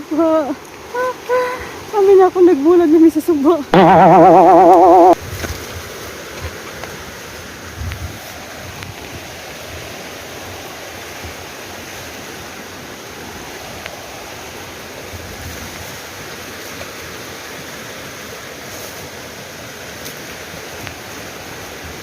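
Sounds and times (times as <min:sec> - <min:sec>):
mountain river rushing: 0:05.5 - 0:22.0.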